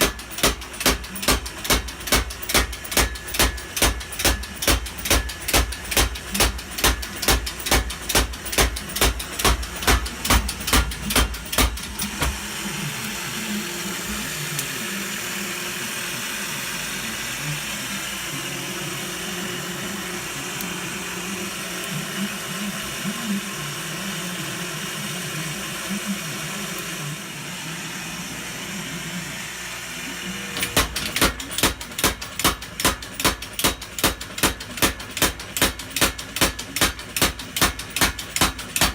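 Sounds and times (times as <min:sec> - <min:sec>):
power hammer striking: 0:00.0 - 0:13.2, 0:30.5 - 0:38.9
hammer drive humming: 0:00.0 - 0:38.9.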